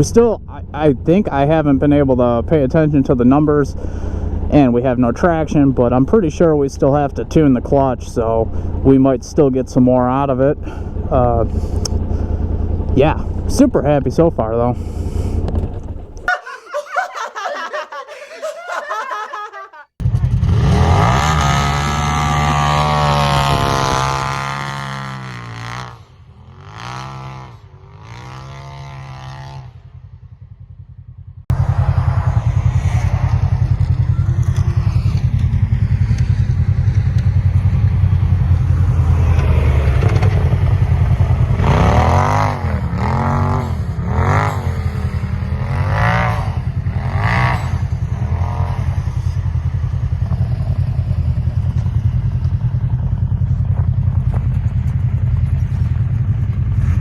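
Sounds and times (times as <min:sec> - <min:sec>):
engine revving: 0:20.0 - 0:57.0.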